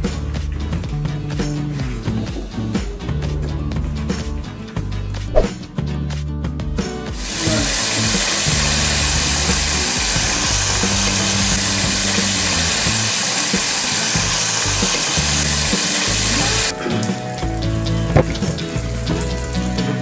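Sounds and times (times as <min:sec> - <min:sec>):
background music: 0:00.0 - 0:20.0
chicken deep-frying in oil: 0:07.2 - 0:20.0.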